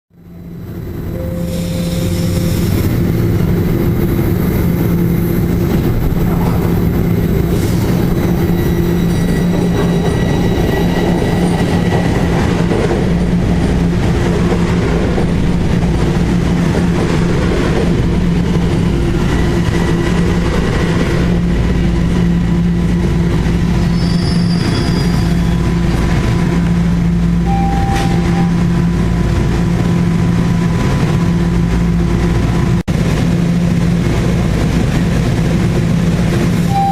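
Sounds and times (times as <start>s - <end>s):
subway train hum: 0.1s - 36.9s
high-pitched wheel squeals: 8.1s - 12.3s, 23.8s - 25.8s.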